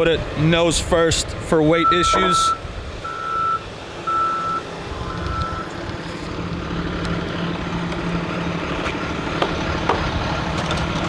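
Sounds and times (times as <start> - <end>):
vehicle engine running: 0.0 - 11.0
reversing alarm beeps: 1.8 - 4.7, 5.3 - 5.7.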